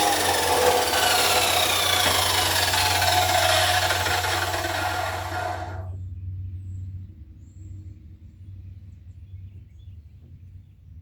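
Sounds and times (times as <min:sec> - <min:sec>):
chop saw cutting steel: 0:00.0 - 0:05.9.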